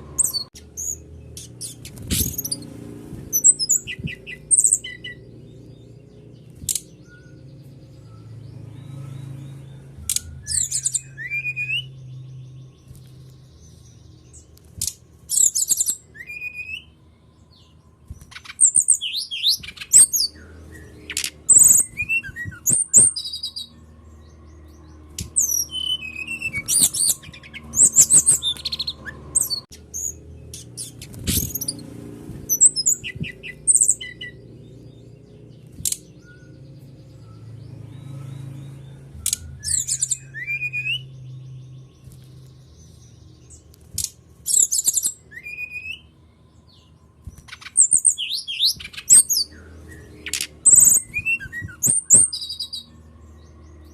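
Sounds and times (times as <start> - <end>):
bird singing quick high chirps: 0.0 - 46.1, 46.7 - 53.9.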